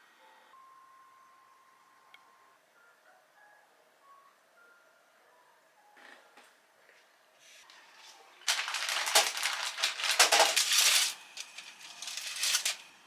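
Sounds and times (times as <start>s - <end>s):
rustling and rattling handling noise: 8.0s - 13.0s.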